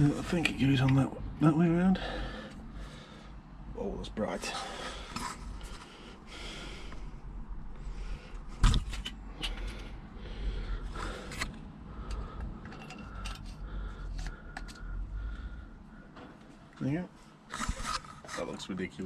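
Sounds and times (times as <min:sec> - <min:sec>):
small metal parts clinking and scraping: 0:12.1 - 0:13.6.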